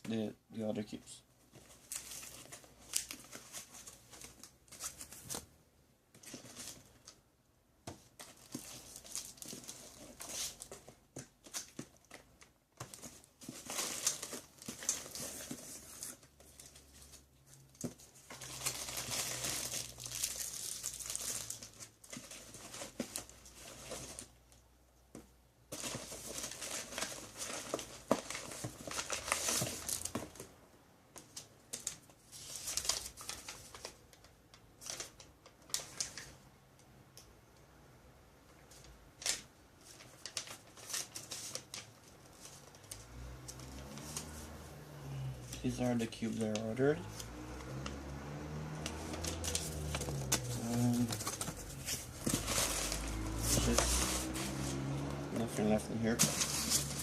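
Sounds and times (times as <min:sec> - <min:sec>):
packaging tearing and crinkling: 0:18.1 - 0:24.3, 0:48.8 - 0:54.8, 0:56.0 - 0:57.0.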